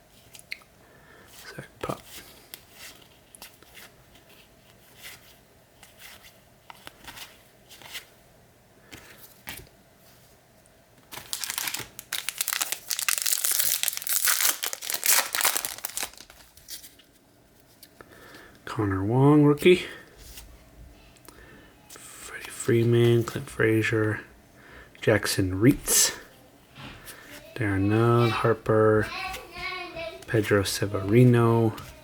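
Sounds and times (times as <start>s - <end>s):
wrapper tearing and crinkling: 11.1s - 16.8s.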